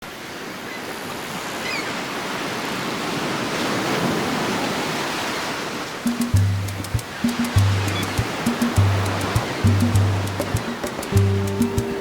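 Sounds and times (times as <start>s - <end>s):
rushing water: 0.1s - 12.0s.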